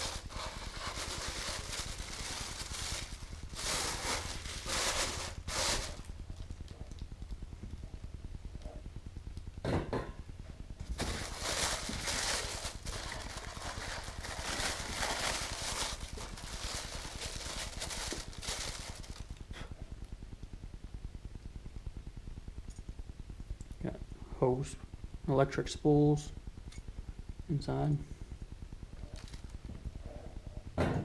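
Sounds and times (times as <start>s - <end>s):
packaging rustling: 0.0s - 6.1s, 10.8s - 19.4s, 29.1s - 29.6s
low hum: 0.0s - 31.0s.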